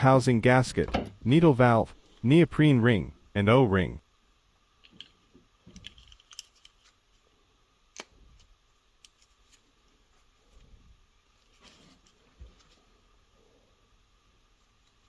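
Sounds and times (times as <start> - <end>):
small metal parts clicking: 4.8 - 6.9.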